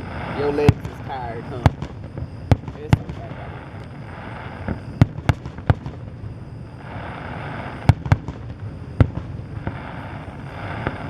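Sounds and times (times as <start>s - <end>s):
fireworks bursting bangs: 0.0s - 11.0s.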